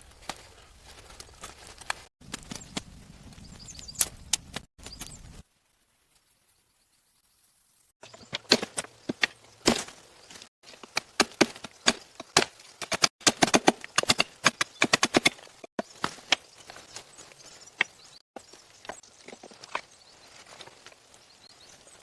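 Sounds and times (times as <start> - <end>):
sharp knocks and cracks: 8.1 - 10.0, 10.6 - 16.5.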